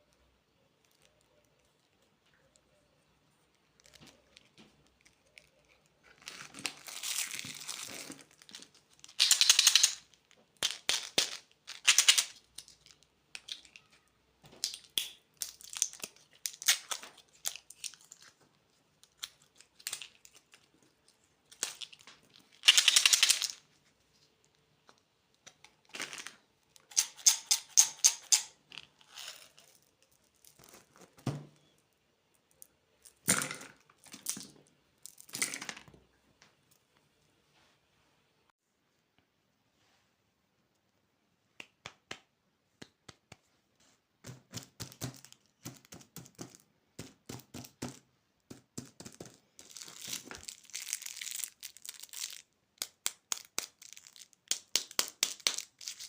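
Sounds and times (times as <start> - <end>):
plastic wrappers crinkling and tearing: 3.6 - 14.0, 14.6 - 18.4, 49.6 - 56.0.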